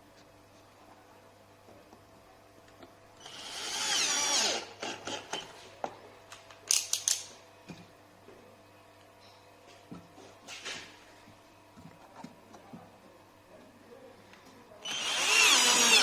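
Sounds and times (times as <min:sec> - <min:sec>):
angle grinder motor running: 0:03.3 - 0:04.6, 0:14.9 - 0:16.0.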